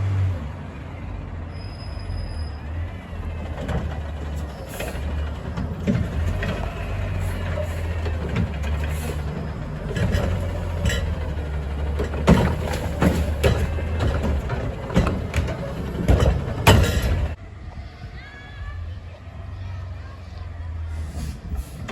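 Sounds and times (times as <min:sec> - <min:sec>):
diesel engine running: 0:00.0 - 0:17.4
metallic bangs and clanks: 0:03.3 - 0:17.4.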